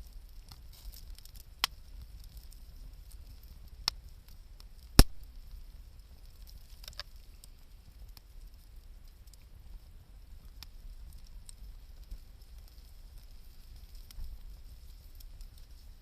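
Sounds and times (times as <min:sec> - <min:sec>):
fire popping: 0:00.0 - 0:16.0
wood fire crackling: 0:00.0 - 0:16.0.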